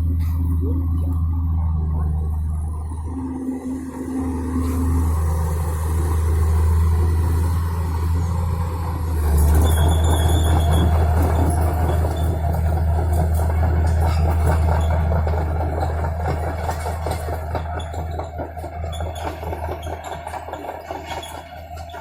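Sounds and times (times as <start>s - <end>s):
excavator diesel engine running: 0.0s - 22.0s
metallic squeal: 3.0s - 7.3s, 9.3s - 12.4s.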